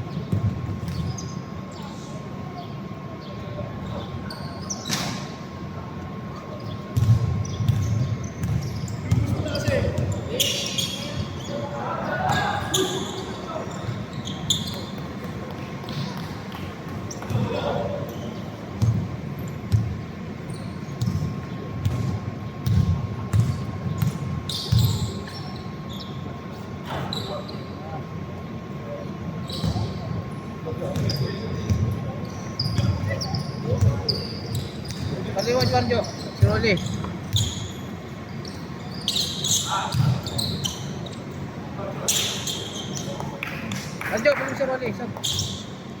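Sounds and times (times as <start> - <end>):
steady hall noise: 0.0 - 46.0
sneaker squeaks on court: 0.2 - 1.8, 3.8 - 5.4, 6.4 - 27.8, 29.4 - 30.1, 30.8 - 43.4, 45.2 - 45.9
ball dribbling thumps: 7.0 - 10.2
basketball bouncing: 7.0 - 10.2, 18.8 - 19.1, 19.7 - 20.0, 21.0 - 25.0, 39.8 - 40.3.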